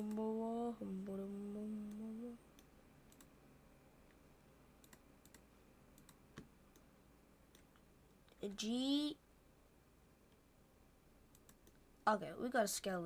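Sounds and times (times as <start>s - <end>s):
person humming: 0.0s - 2.4s.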